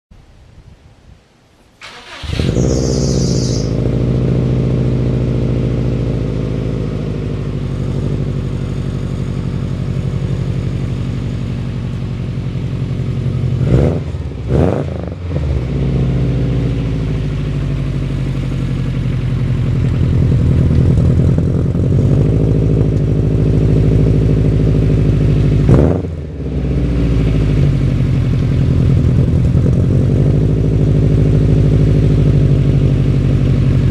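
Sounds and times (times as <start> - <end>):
car engine starting and idling: 1.6 - 33.9
power steering squeal: 1.8 - 3.7.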